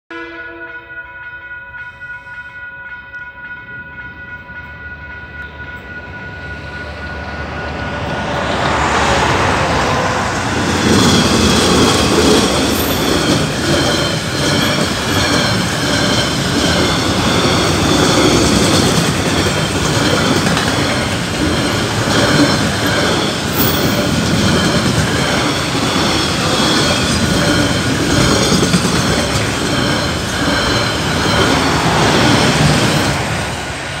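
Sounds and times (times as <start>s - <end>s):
level crossing bell ringing: 0.1s - 8.0s
train wheels clattering and squealing: 6.9s - 34.0s.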